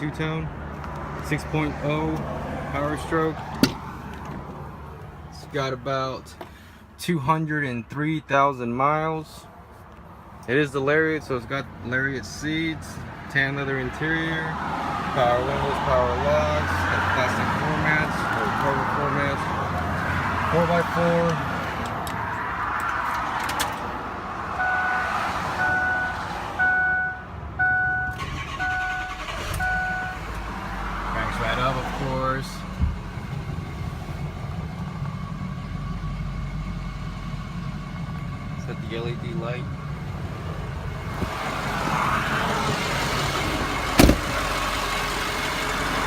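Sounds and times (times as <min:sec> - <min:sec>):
electronic warning beeps: 0:24.6 - 0:30.2
diesel engine idling: 0:26.6 - 0:31.0, 0:31.8 - 0:46.0.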